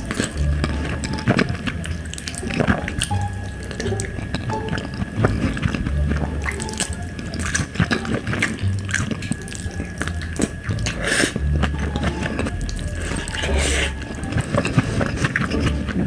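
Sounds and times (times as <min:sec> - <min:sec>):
wet chewing and smacking: 0:00.0 - 0:16.0.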